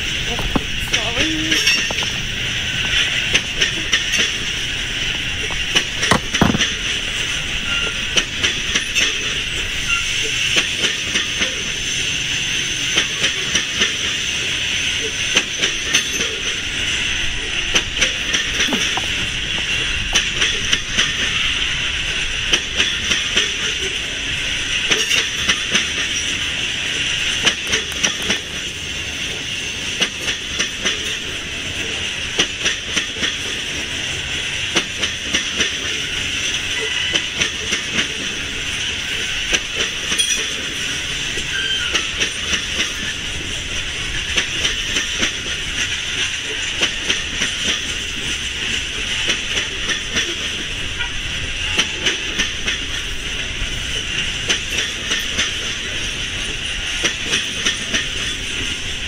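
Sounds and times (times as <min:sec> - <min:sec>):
steel wheels hissing on rail: 0:00.0 - 0:59.0
wheels clicking over track joints: 0:00.2 - 0:11.7, 0:17.2 - 0:21.4, 0:27.2 - 0:33.8, 0:39.5 - 0:58.8.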